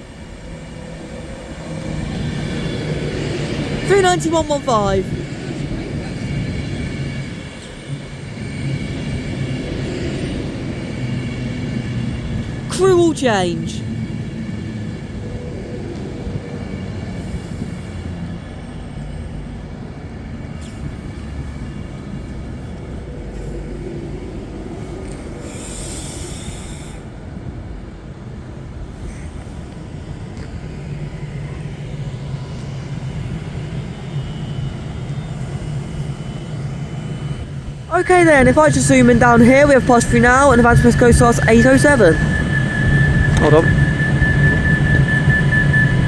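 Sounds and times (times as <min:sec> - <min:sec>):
electric trains rumbling and humming: 0:05.0 - 0:12.7, 0:13.8 - 0:46.0
hiss: 0:25.4 - 0:27.1.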